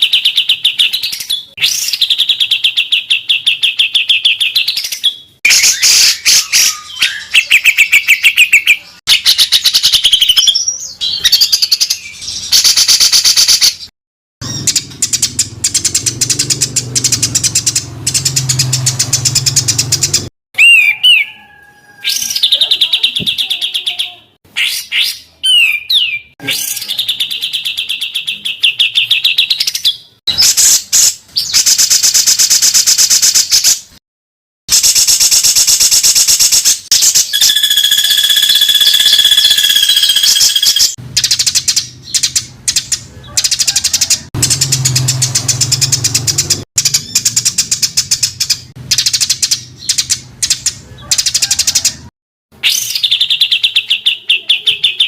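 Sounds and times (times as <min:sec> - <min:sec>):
songbird chattering trills: 0:14.4 - 0:21.3, 0:37.0 - 0:51.8.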